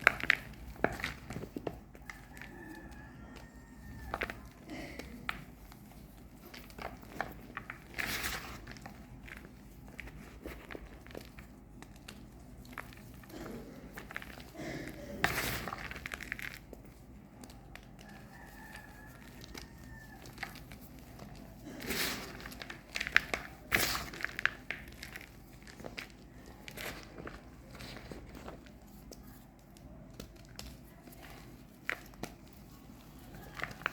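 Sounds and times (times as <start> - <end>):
chalk crunching and crumbling: 0.0 - 33.9.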